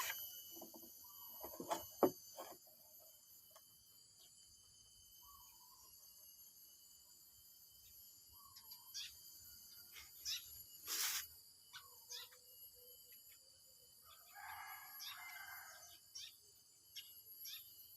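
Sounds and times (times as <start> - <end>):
bird chirps: 3.1 - 7.1, 7.7 - 14.2, 16.1 - 17.9
brief hissing burst: 10.8 - 11.3
rooster crowing: 14.1 - 15.9.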